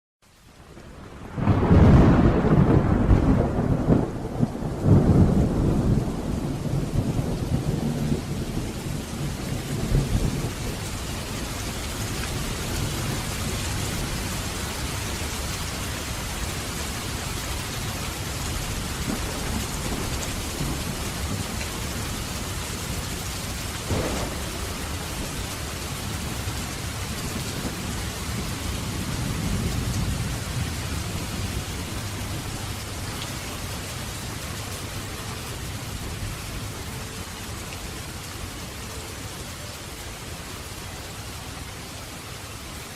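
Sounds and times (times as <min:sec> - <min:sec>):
steady rain falling: 0:00.2 - 0:42.9
thunder rumbling: 0:00.8 - 0:37.6
sharp thunder crack: 0:01.3 - 0:10.5, 0:23.8 - 0:26.4.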